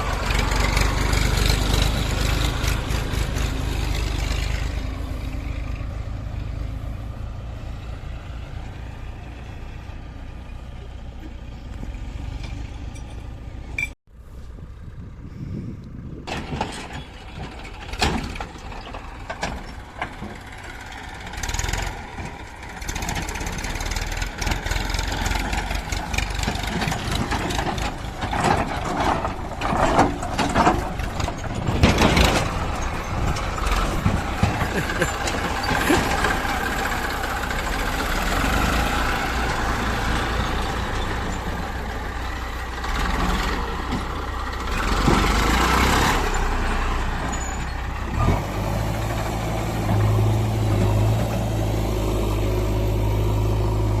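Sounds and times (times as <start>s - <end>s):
diesel engines running: 0.0s - 54.0s
sharp knocks and clatter: 21.4s - 36.8s.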